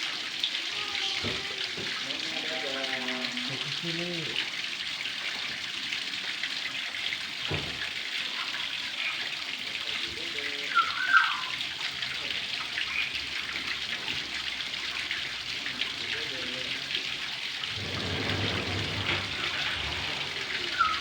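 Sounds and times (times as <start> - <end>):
water running from a tap: 0.0 - 21.0
high squeak: 17.7 - 21.0.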